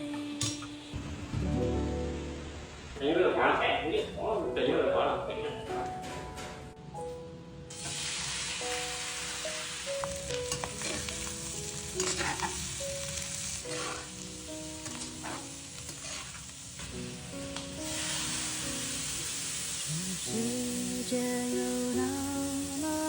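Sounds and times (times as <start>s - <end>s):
soft background song: 0.0s - 23.0s
food sizzling in a pan: 7.7s - 23.0s
scrapes or knocks on a pan: 12.0s - 12.6s, 14.9s - 16.4s.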